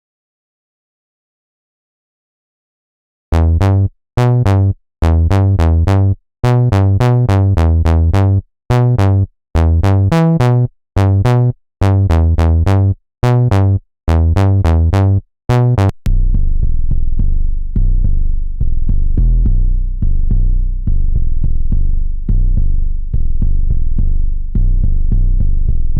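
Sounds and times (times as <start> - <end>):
punchy bass synth riff: 3.3 - 18.1.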